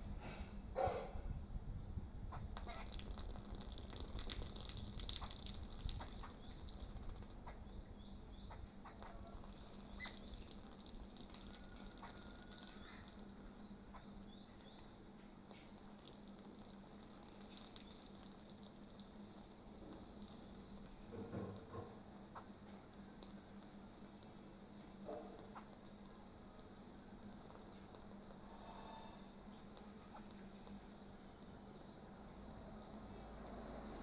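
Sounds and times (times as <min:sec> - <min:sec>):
steady high hiss: 0:00.0 - 0:34.0
birds splashing in water: 0:02.6 - 0:07.6, 0:08.9 - 0:13.5, 0:15.5 - 0:21.1.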